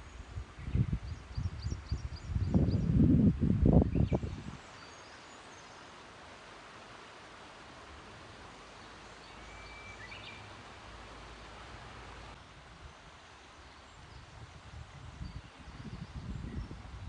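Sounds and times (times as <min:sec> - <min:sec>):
wind rumble on microphone: 0:00.0 - 0:04.7, 0:13.9 - 0:17.0
outdoor background hiss: 0:00.0 - 0:17.0
bird chirp: 0:09.0 - 0:10.5.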